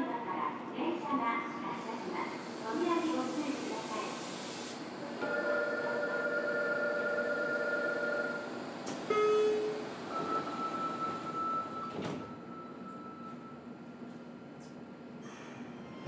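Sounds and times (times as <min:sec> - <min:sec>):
train inverter tones: 0:05.2 - 0:14.2.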